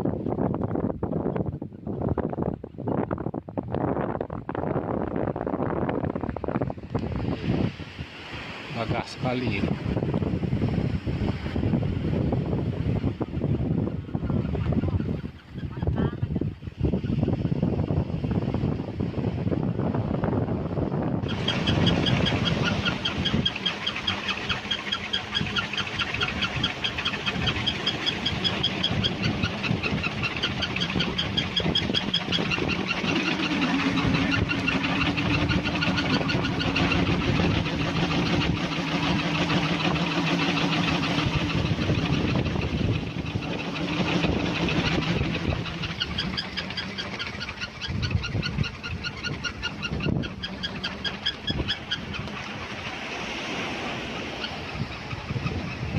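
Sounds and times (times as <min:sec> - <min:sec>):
wind buffeting microphone: 0:00.0 - 0:55.9
low drone: 0:21.1 - 0:55.9.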